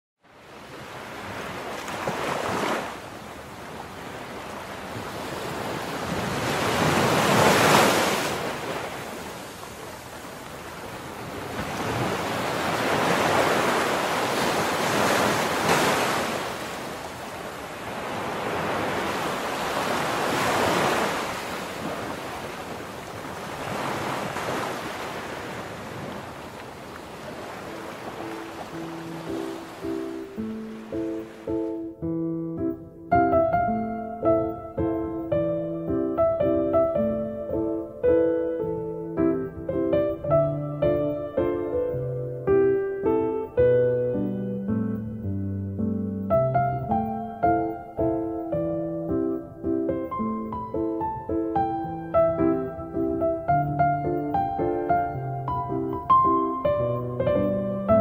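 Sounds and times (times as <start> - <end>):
sea waves breaking: 0.3 - 32.0.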